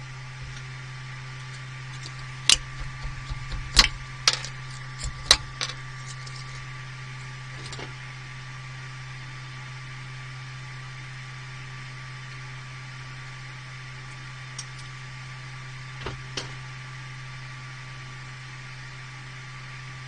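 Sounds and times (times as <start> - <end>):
printer fan hum: 0.0 - 20.0
sharp clicks and knocks: 1.4 - 6.6.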